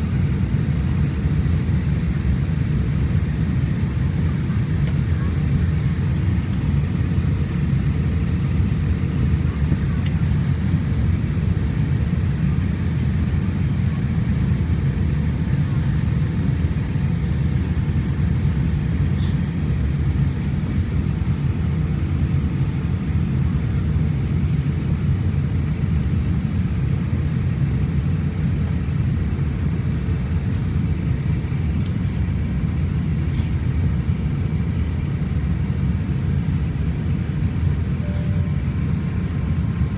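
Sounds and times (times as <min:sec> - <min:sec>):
airliner cabin rumble: 0:00.0 - 0:39.9
faint high whine: 0:37.8 - 0:39.9.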